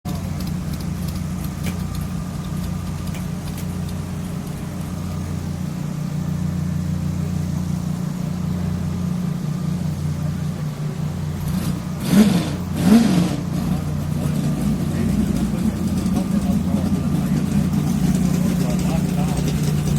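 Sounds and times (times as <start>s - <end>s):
truck engine idling: 0.0s - 19.9s
truck engine revving: 0.1s - 19.9s.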